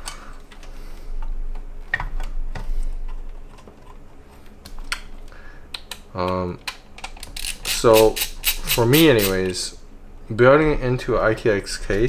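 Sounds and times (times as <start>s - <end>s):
computer parts clicking and tapping: 6.6s - 9.6s.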